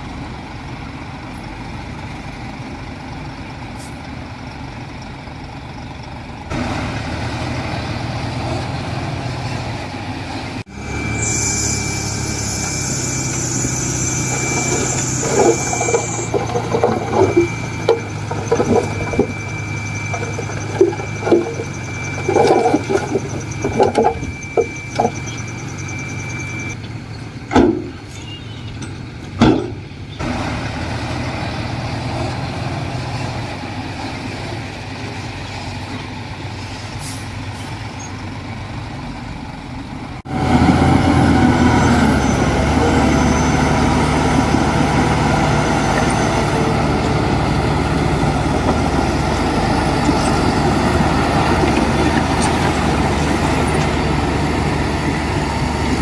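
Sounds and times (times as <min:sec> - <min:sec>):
heavy machinery engine drone: 0:00.0 - 0:56.0
sharp metal knocks and clanks: 0:14.2 - 0:25.5, 0:27.5 - 0:28.2, 0:28.8 - 0:29.9.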